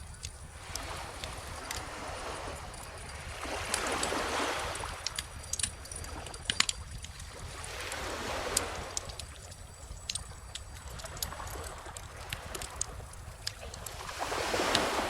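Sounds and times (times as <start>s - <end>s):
ocean waves: 0.0s - 15.0s
wood fire crackling and popping: 8.9s - 14.0s.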